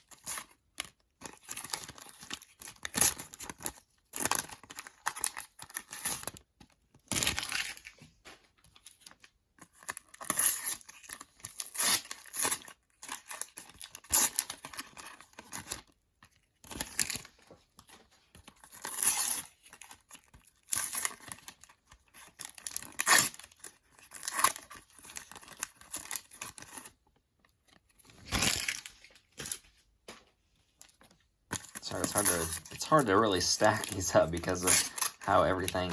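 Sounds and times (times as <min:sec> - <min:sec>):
sticker packets tearing open: 0:00.0 - 0:07.9, 0:08.8 - 0:27.0, 0:27.6 - 0:29.6, 0:31.5 - 0:35.9.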